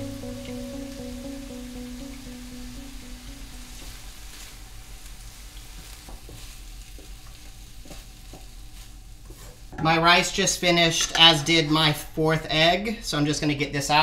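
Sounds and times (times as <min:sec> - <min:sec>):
meat sizzling in a pan: 0:00.0 - 0:10.4
wooden spatula stirring: 0:05.7 - 0:11.3.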